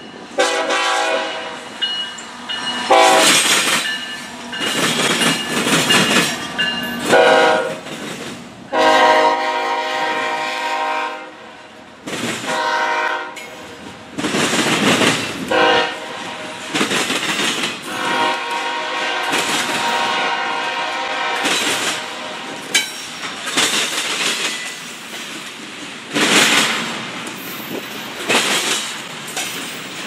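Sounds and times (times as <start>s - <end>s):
locomotive air horn blasts: 0.4s - 1.7s, 2.9s - 3.4s, 7.0s - 7.8s, 8.7s - 11.5s, 12.5s - 13.7s, 15.5s - 16.7s, 17.9s - 22.5s
freight train wheels clattering: 1.6s - 9.6s, 12.0s - 30.0s.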